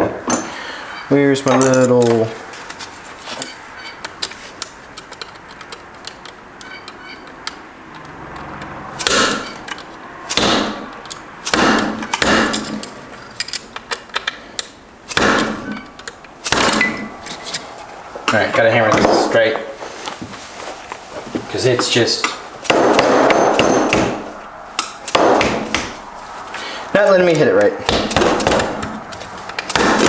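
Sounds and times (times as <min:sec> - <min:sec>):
tools and parts clattering: 0:00.0 - 0:10.0, 0:11.8 - 0:30.0
hammer striking steel: 0:09.0 - 0:09.6, 0:10.3 - 0:13.0, 0:15.1 - 0:17.2, 0:22.6 - 0:26.1, 0:27.8 - 0:29.0, 0:29.7 - 0:30.0.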